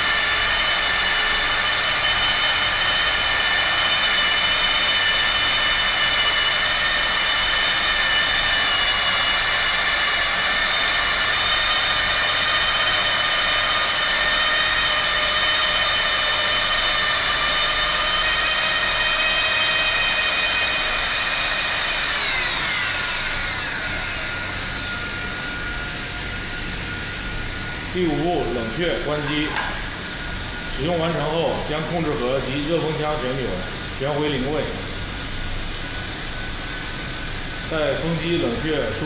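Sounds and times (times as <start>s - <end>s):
welding gun motor whining: 0.0s - 30.8s
hot-air blower hissing: 0.0s - 39.0s.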